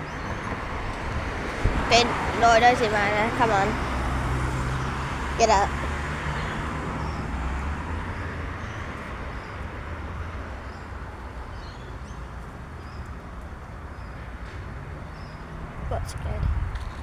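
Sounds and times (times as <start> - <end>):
vehicle passing by: 0.0 - 10.7, 14.4 - 17.0
road traffic rumble: 0.0 - 17.0.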